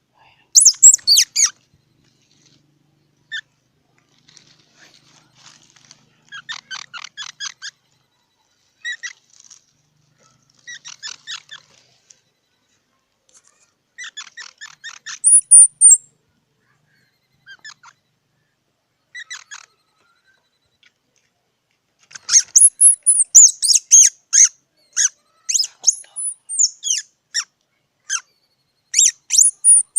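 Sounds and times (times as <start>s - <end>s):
squirrel chattering: 0.6s - 1.5s, 14.0s - 16.0s, 22.2s - 27.5s, 28.9s - 29.9s
high swooping squeaks: 0.6s - 1.6s, 13.6s - 16.0s, 29.0s - 29.9s
squirrel squealing: 0.6s - 1.6s, 13.5s - 16.0s, 22.1s - 28.3s, 28.9s - 29.9s.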